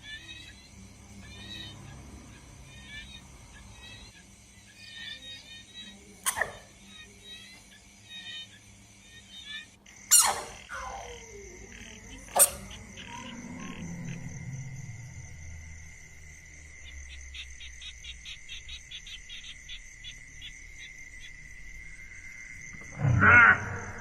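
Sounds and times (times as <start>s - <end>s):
frogs trilling in chorus: 0.0s - 24.0s
quick pulsed frog calls: 6.2s - 24.0s.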